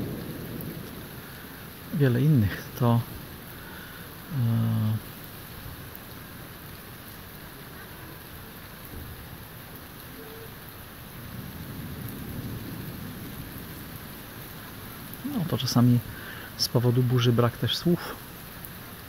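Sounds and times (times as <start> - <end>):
distant thunder rumble: 0.0 - 5.8, 11.2 - 16.4
rain on foliage: 0.0 - 19.0.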